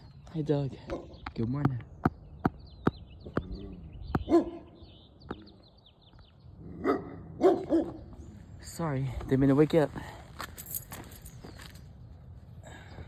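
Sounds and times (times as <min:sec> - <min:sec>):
faint birds chirping: 0:00.0 - 0:13.0
dog barking: 0:00.9 - 0:01.2, 0:04.2 - 0:04.8, 0:06.8 - 0:08.1.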